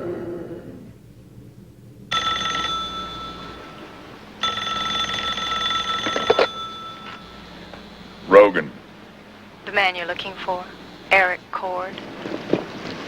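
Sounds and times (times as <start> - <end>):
telephone bell ringing: 2.1 - 8.3.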